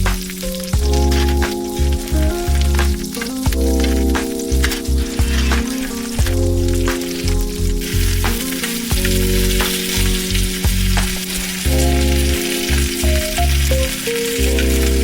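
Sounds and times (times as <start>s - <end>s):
background music with pulsing bass: 0.0s - 15.0s
food sizzling in hot oil: 0.0s - 15.0s
oil popping and crackling: 0.0s - 15.0s.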